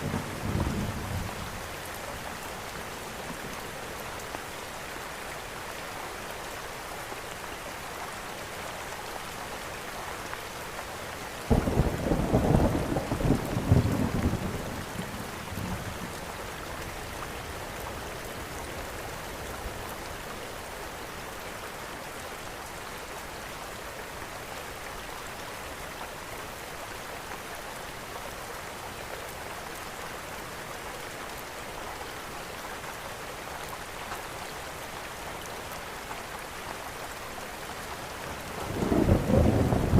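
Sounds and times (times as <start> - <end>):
steady rain: 0.0 - 39.9
thunder clap rumbling: 38.7 - 39.9.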